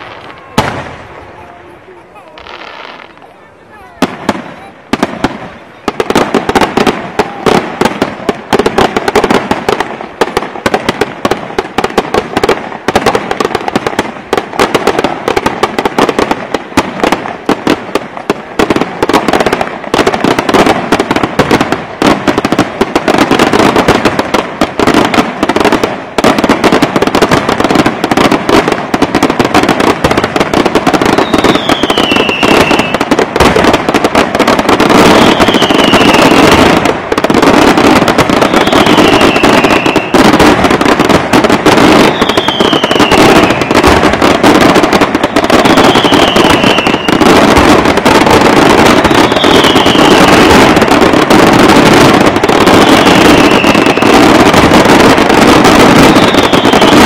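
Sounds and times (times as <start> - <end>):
fireworks bangs and crackling: 0.0 - 57.0
falling firework whistles: 31.1 - 33.7, 35.0 - 36.7, 38.3 - 40.4, 42.0 - 44.0, 45.3 - 47.4, 48.9 - 50.7, 52.6 - 54.5, 55.7 - 57.0.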